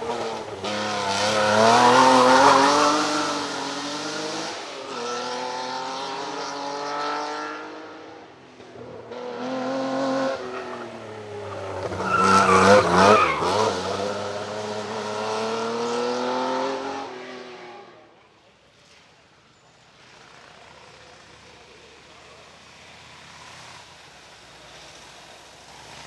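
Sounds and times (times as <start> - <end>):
racing car engine revving: 0.0 - 8.1, 8.9 - 17.7.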